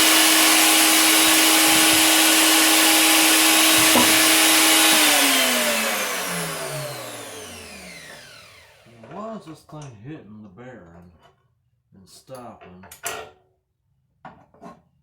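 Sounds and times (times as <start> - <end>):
router motor whining: 0.0 - 9.0.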